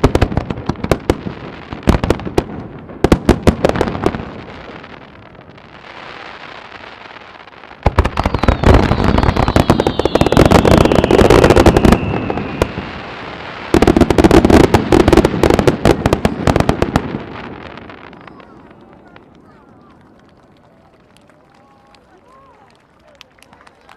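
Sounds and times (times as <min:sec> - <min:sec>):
fireworks cracks and bangs: 0:00.0 - 0:22.4
firework whistle falling in pitch: 0:07.9 - 0:14.1.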